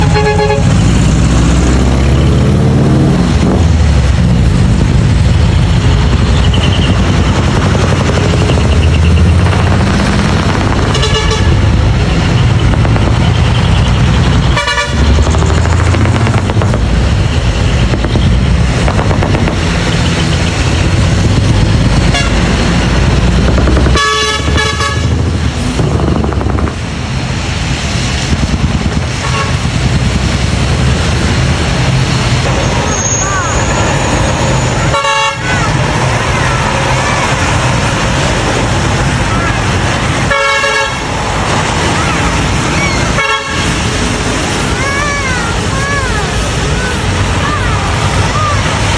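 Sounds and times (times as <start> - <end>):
air horn toots: 0.0 - 0.8, 10.8 - 16.0, 22.0 - 22.5, 23.6 - 25.2, 34.6 - 35.7, 40.2 - 41.2, 43.1 - 43.9
diesel truck engines running: 0.0 - 48.9.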